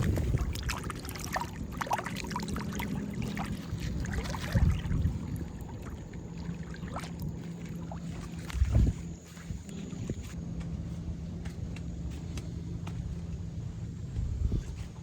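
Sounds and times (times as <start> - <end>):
water splashing and trickling: 0.0 - 10.4
steady low rumble: 0.0 - 15.0.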